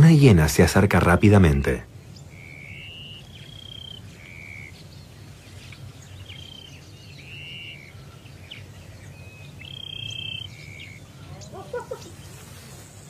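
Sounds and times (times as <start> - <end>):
bird whistling: 2.2 - 4.8, 6.2 - 11.5.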